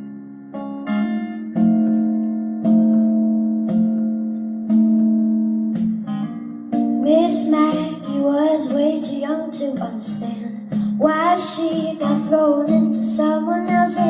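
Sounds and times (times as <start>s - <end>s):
guitar chords ringing: 0.0s - 14.0s
person singing: 7.0s - 14.0s.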